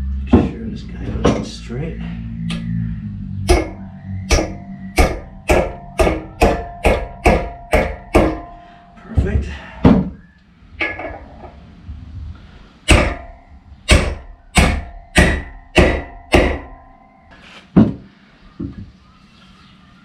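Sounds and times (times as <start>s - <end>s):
hammer striking metal: 3.4s - 8.8s, 10.8s - 11.3s, 12.9s - 17.2s.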